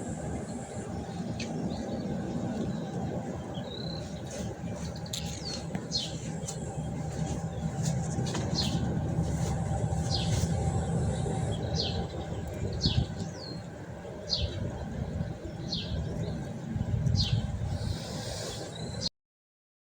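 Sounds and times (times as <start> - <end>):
wind rumble on microphone: 0.0 - 19.1.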